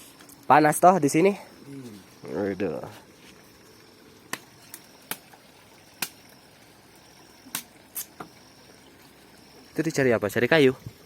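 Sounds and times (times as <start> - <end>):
low steady hiss: 0.0 - 11.0
dry firewood snapping: 4.3 - 5.4, 6.0 - 6.3, 7.5 - 8.3.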